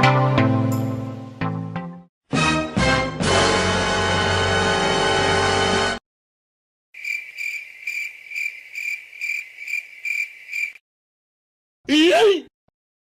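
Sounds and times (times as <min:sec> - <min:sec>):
crickets chirping: 0:07.0 - 0:10.8.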